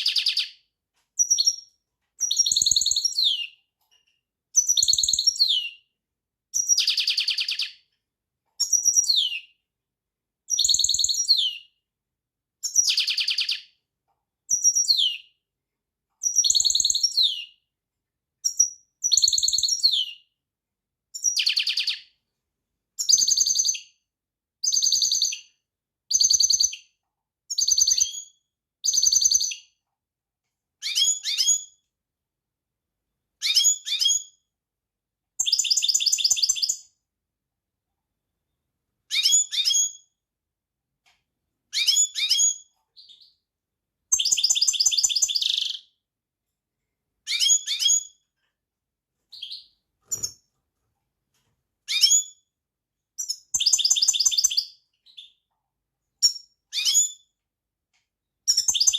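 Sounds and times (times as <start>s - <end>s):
finch singing trills: 53.2s - 55.4s.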